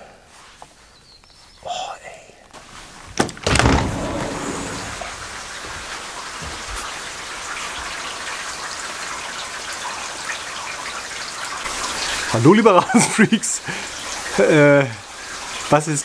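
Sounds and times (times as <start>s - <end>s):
heavy rain pouring: 2.6s - 16.0s
short thump: 3.1s - 5.2s.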